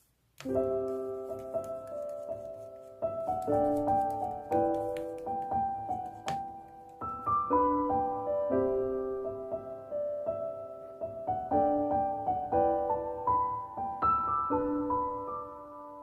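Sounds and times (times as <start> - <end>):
slow piano music: 0.4 - 16.0.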